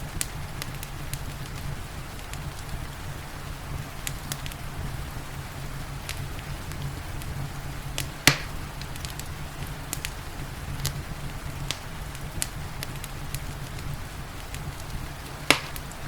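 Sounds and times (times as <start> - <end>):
rain hissing: 0.0 - 16.0
wood fire crackling: 0.0 - 16.0
loud pop from fire: 8.0 - 10.2, 11.6 - 16.0.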